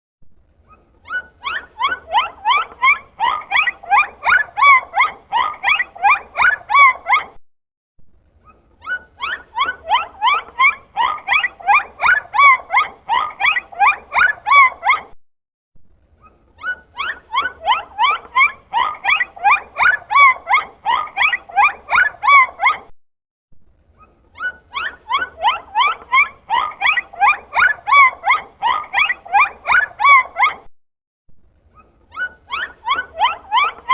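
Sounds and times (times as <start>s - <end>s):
dolphin squeaky chirps and clicks: 24.0s - 30.7s, 31.7s - 33.9s.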